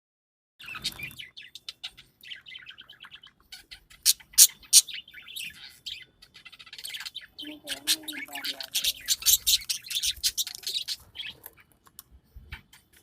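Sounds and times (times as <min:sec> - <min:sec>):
shrill parrot calls: 0:00.6 - 0:11.0
parrots chirping and chattering: 0:00.6 - 0:13.0.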